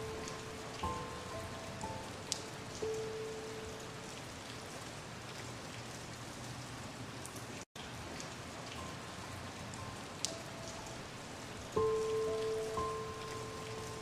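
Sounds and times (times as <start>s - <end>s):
water drops dripping: 0.0s - 4.7s, 7.8s - 11.1s, 11.7s - 14.0s
rain falling: 0.0s - 14.0s.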